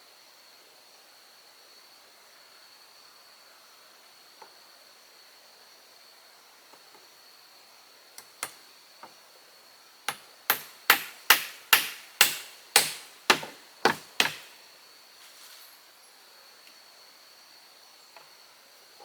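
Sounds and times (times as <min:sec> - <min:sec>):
insects droning: 0:00.0 - 0:19.0
hand tool striking wood: 0:10.1 - 0:14.6.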